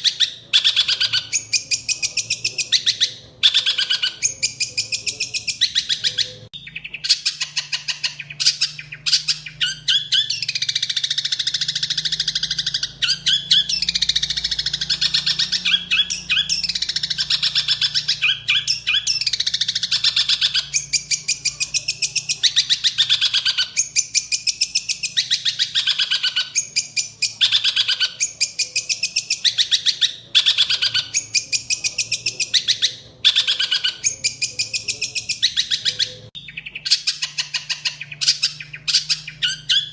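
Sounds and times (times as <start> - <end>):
bird harsh chattering song: 0.0 - 39.9.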